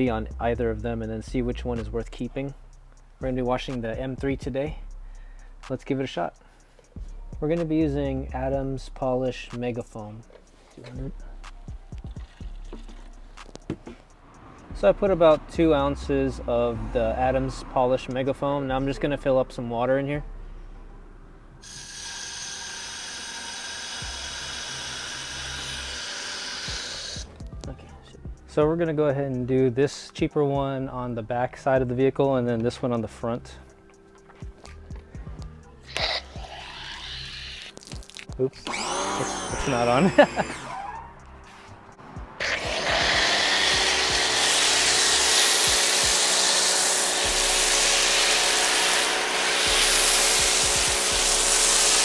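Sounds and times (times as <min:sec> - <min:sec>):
pressure washer spraying foam: 0:21.6 - 0:27.3, 0:38.7 - 0:41.0, 0:42.4 - 0:52.0.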